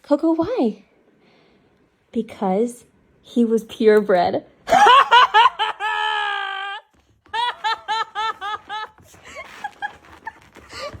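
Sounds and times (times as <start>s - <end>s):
person laughing: 4.7s - 10.9s
high wail: 4.8s - 8.9s.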